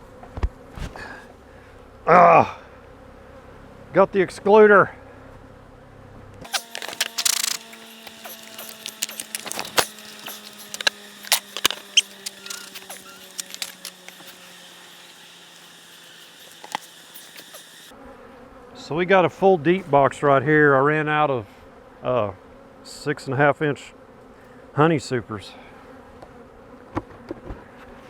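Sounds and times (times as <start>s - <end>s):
honey bees buzzing: 2.7s - 28.0s
hive boxes clicking and knocking: 6.4s - 17.9s
scraping rasp: 6.4s - 17.9s.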